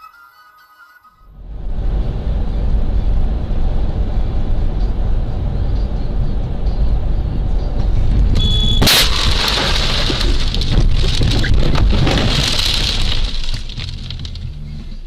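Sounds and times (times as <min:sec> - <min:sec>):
vehicle road noise: 0:01.3 - 0:15.0
loud car impact: 0:08.2 - 0:14.6
crunching and scraping: 0:08.4 - 0:15.0.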